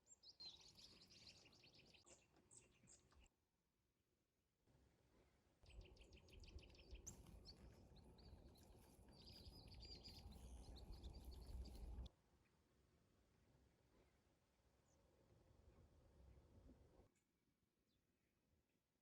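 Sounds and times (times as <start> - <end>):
small birds chirping: 5.7 - 12.1
low rumbling background noise: 7.6 - 12.1.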